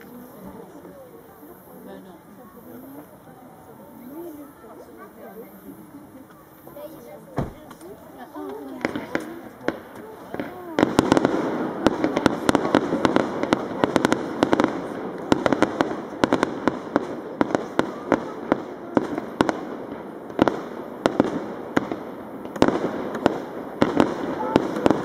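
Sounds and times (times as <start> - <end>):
fireworks crackling: 0.0 - 25.0
fireworks bangs and cracks: 7.4 - 25.0.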